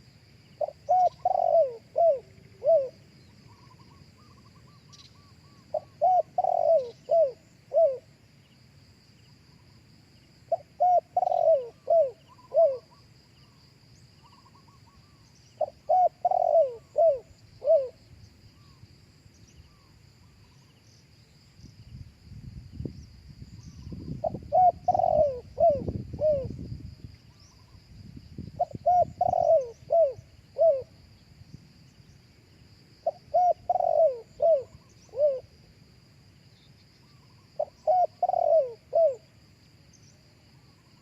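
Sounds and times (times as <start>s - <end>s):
dove cooing: 0.6s - 8.1s, 10.5s - 13.0s, 14.2s - 18.0s, 24.0s - 26.6s, 28.6s - 31.0s, 33.0s - 35.6s, 37.2s - 39.3s
small birds chirping: 0.6s - 8.6s.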